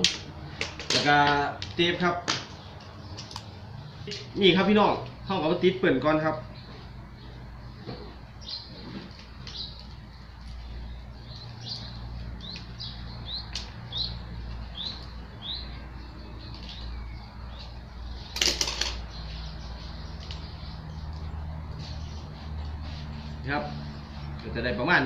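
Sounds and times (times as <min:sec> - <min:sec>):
small bird chirping: 0:06.5 - 0:24.3.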